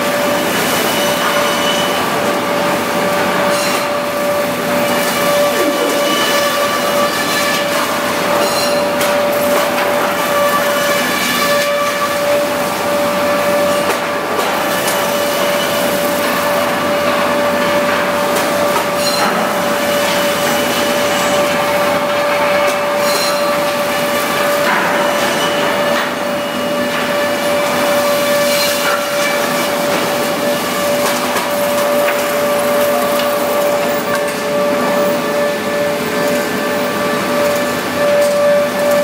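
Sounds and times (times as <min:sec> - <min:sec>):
wood planing machine whining: 0:00.0 - 0:39.0.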